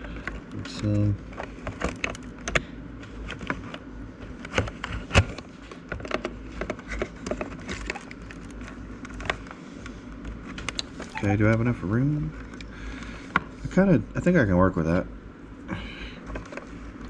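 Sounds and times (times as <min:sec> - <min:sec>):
clicks and knocks of handled parts: 0:00.1 - 0:02.6.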